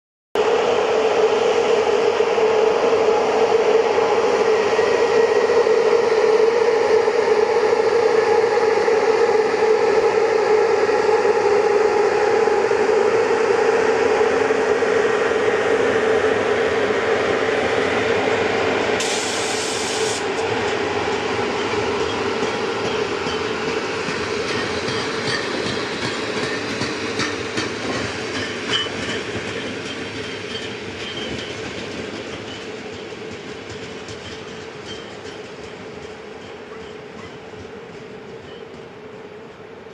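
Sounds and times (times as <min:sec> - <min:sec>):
locomotive hum: 0:00.5 - 0:39.9
short burst of hiss: 0:19.0 - 0:20.3.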